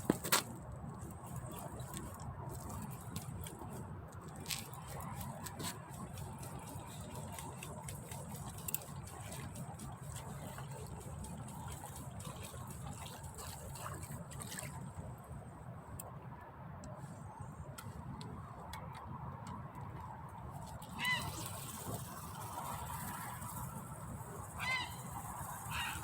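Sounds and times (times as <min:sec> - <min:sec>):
trickling running water: 0:04.4 - 0:14.8.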